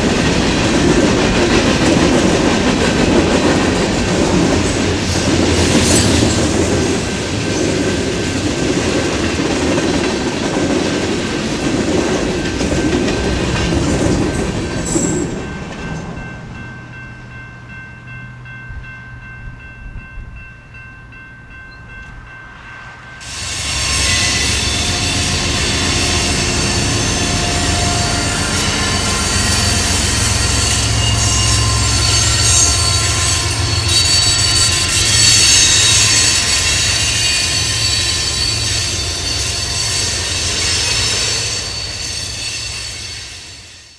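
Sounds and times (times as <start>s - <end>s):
diesel locomotive engine drone: 0.0s - 43.9s
high wheel squeal: 23.2s - 43.9s.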